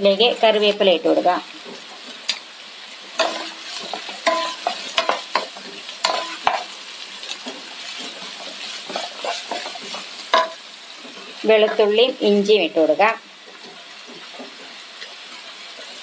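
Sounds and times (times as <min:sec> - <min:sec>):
onions sizzling in hot oil: 0:00.0 - 0:16.0
wooden spatula scraping pan: 0:03.2 - 0:11.9.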